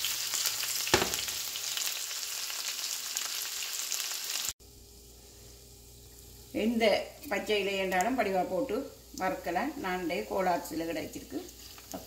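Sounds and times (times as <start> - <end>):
onions sizzling in a frying pan: 0.0 - 5.1, 5.9 - 12.0.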